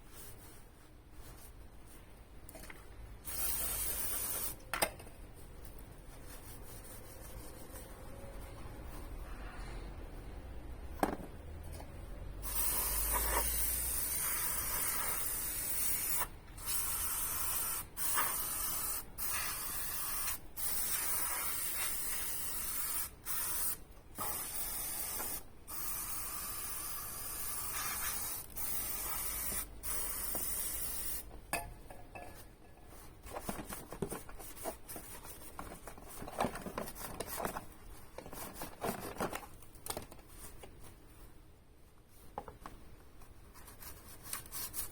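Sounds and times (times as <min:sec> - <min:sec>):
aerosol can spraying: 0:03.3 - 0:04.6, 0:12.4 - 0:31.3
rubbing and wiping: 0:05.9 - 0:09.2.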